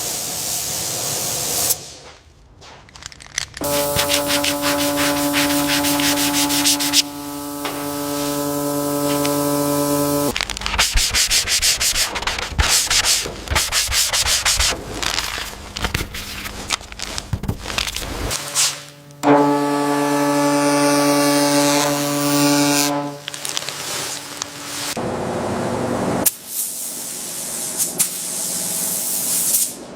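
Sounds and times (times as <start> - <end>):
pulsing hum: 3.6 - 10.4
sanding a surface: 3.6 - 16.7.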